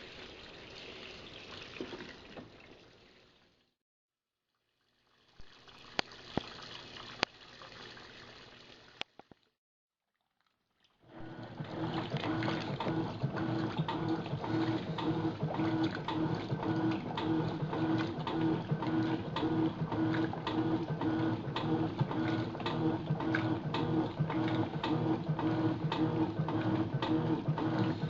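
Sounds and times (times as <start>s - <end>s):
washing machine agitating: 11.0s - 28.0s.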